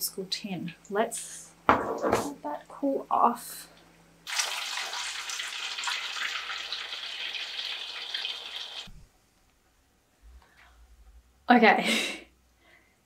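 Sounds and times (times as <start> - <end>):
food deep-frying in oil: 4.3 - 9.0.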